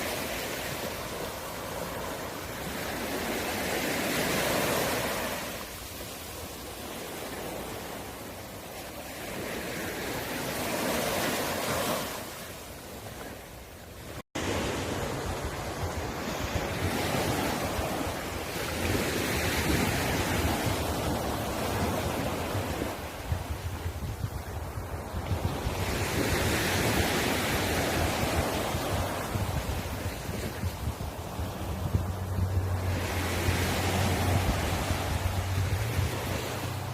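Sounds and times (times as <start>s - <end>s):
surf breaking ashore: 0.0s - 36.9s
wind rumbling on microphone: 13.0s - 36.9s.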